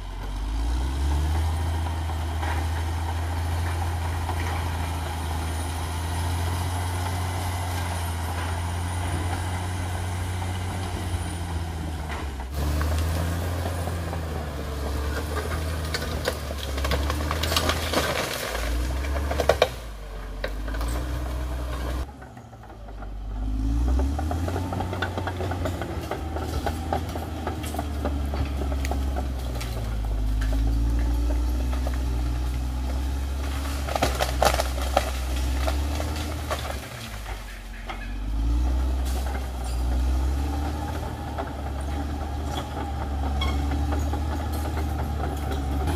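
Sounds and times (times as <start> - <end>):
bulldozer diesel engine running: 0.0 - 45.9
metal clanks and rattles: 24.1 - 45.9.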